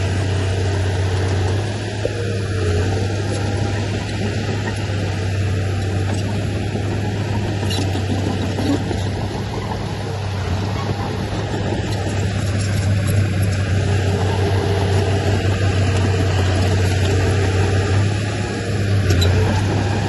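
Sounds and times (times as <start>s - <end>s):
heavy machinery diesel engine: 0.0s - 20.0s.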